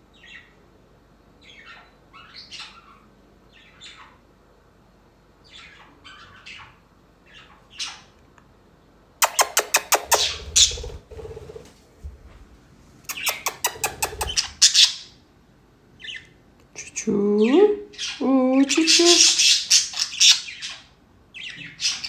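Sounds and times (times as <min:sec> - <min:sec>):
budgerigar calling and chattering: 0:01.4 - 0:04.2, 0:05.4 - 0:08.1, 0:09.2 - 0:11.6, 0:13.1 - 0:15.2, 0:16.0 - 0:16.3, 0:17.4 - 0:22.0
quick sharp clicks: 0:09.2 - 0:11.0, 0:13.1 - 0:14.6.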